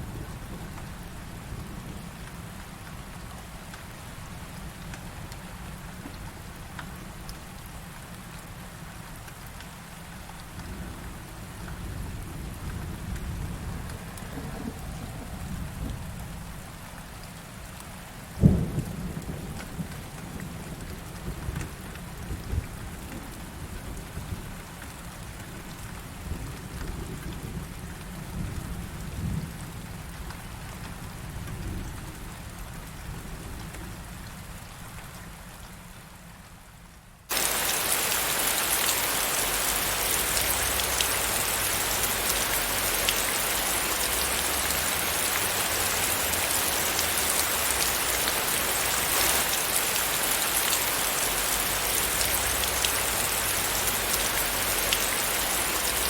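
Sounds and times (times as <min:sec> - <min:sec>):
heavy pouring rain: 0:00.0 - 0:56.0
thunder rumbling: 0:37.3 - 0:56.0.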